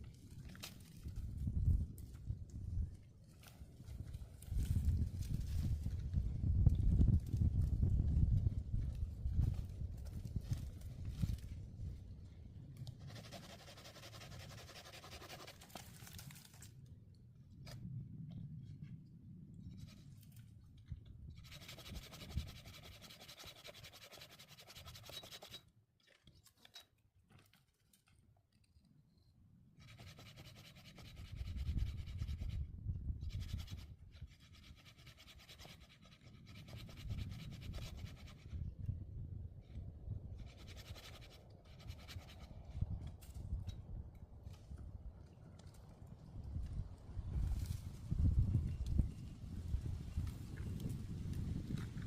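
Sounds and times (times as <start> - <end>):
hand saw cutting wood: 13.1 - 15.8, 21.4 - 25.6, 29.8 - 32.5, 33.4 - 38.4, 40.5 - 42.5.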